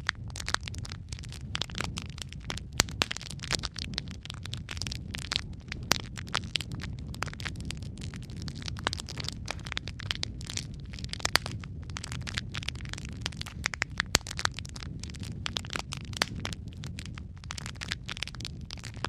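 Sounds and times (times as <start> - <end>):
low rumble of flames: 0.0 - 19.0
wood fire snapping and popping: 0.0 - 19.0.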